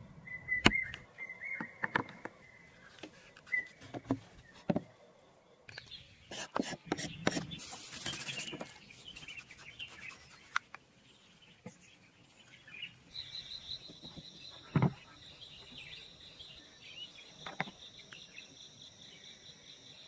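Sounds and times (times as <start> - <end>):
bird chirps: 0.2 - 20.0.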